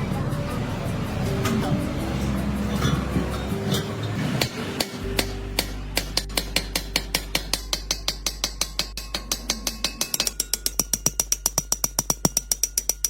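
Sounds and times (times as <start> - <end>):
steady low hum: 0.0 - 13.0
rapid metallic taps: 2.7 - 13.0.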